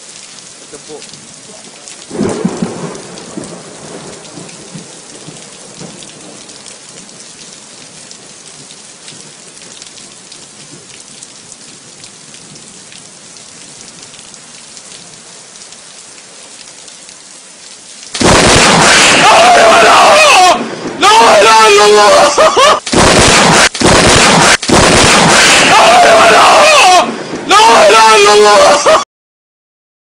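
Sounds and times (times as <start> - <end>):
heavy rain pattering: 0.0 - 29.0
thunder rumble: 2.1 - 7.1, 18.2 - 21.4, 22.9 - 27.5.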